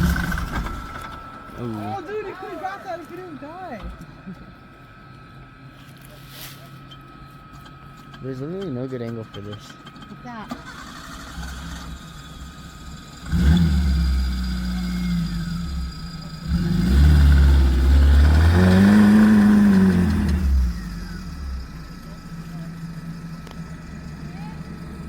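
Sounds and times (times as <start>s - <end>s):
off-road vehicle engine revving: 0.0s - 2.2s, 7.6s - 25.0s.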